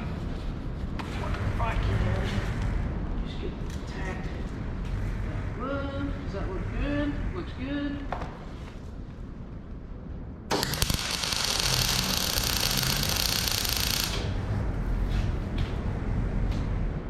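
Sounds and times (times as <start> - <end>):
arc welder crackling: 10.5 - 14.5.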